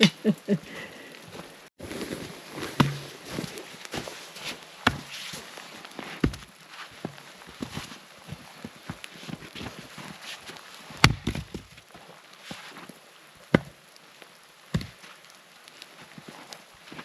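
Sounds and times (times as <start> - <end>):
firewood chopping: 2.7 - 3.4, 4.8 - 5.2, 6.2 - 6.5, 11.0 - 11.7, 13.5 - 13.8, 14.7 - 15.0.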